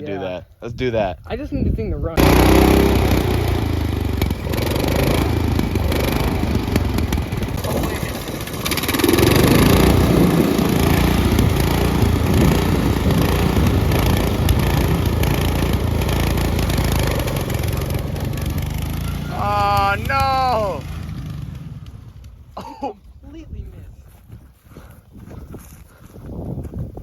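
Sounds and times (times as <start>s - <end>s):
engine running: 2.2s - 22.6s.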